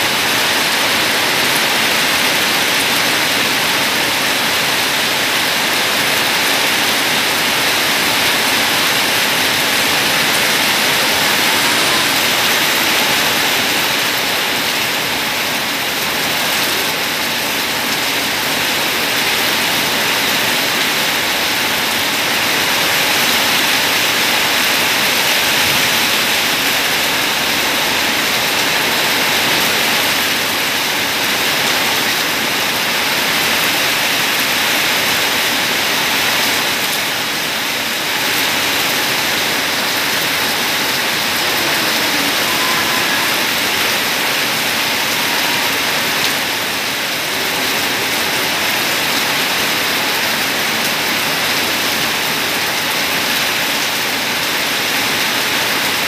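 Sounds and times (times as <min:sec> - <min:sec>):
heavy rain on paving: 0:00.0 - 0:56.0.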